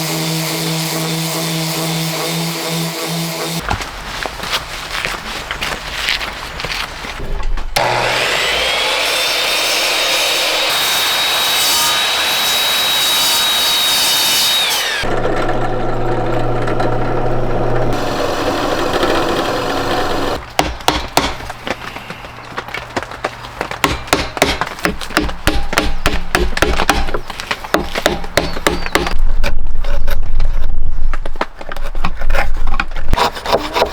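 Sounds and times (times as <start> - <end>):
electric power sander on wood: 0.0 - 3.6, 7.8 - 20.4
sanding strokes rubbing wood: 0.0 - 3.6, 33.2 - 33.9.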